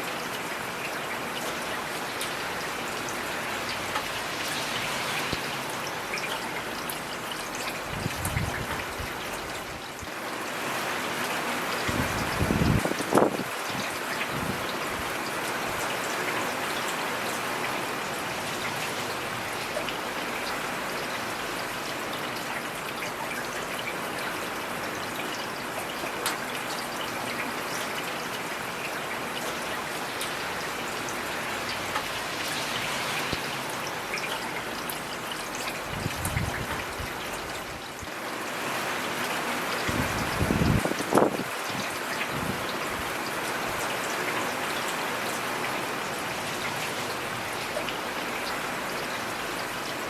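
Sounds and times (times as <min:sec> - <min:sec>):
heavy rain falling: 0:00.0 - 0:50.0.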